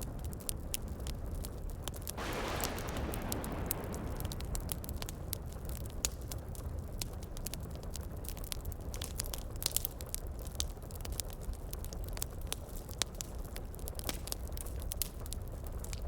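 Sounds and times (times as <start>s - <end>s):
heavy rain rumble: 2.2s - 8.0s
wood fire crackling and popping: 2.2s - 16.0s.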